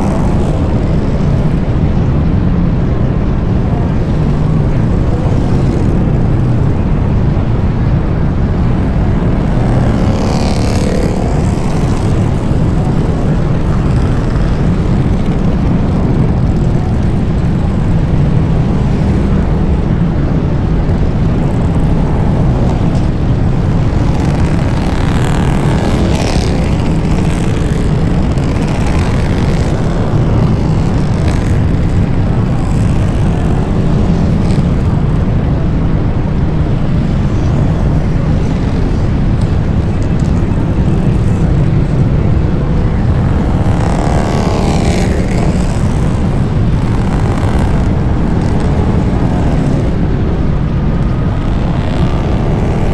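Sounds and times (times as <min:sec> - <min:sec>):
motorcycle engines rumbling: 0:00.0 - 0:52.9.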